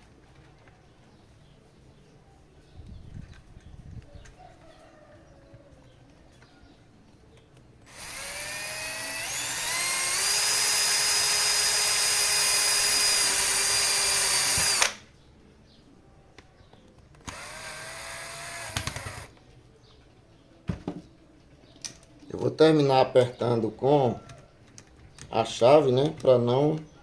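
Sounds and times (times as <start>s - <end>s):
cordless drill motor whine: 7.9s - 15.0s, 17.2s - 19.3s.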